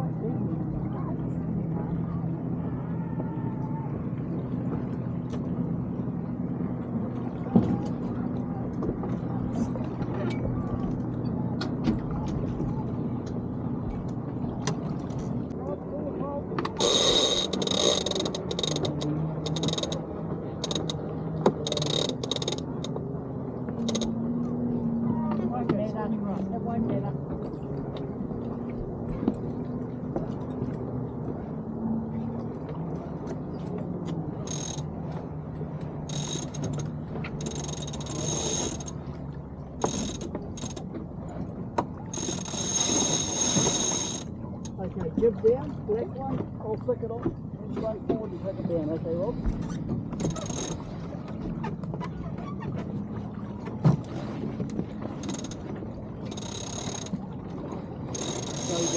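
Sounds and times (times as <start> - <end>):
low rumble: 0.0 - 42.6
winch ratcheting: 16.6 - 23.0, 23.7 - 24.2, 34.4 - 35.2, 36.0 - 39.1, 39.8 - 40.9, 42.1 - 44.8, 49.8 - 50.8, 55.1 - 57.2, 58.1 - 58.9.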